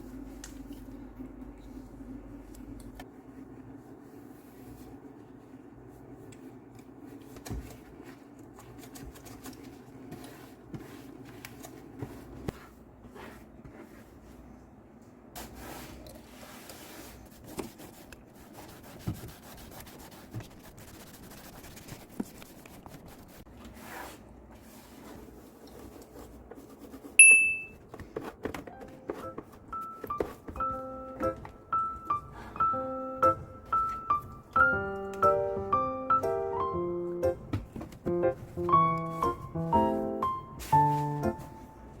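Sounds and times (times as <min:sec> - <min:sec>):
cloth wiping a hard surface: 0:09.7 - 0:14.6, 0:15.4 - 0:27.2, 0:40.6 - 0:41.8.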